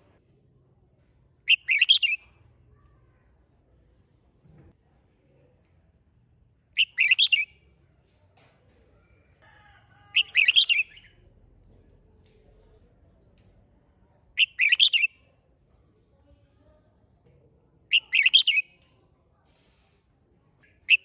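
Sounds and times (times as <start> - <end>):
bird singing: 1.2 - 2.6, 6.8 - 7.7, 9.9 - 11.2, 14.4 - 15.2, 17.9 - 18.7.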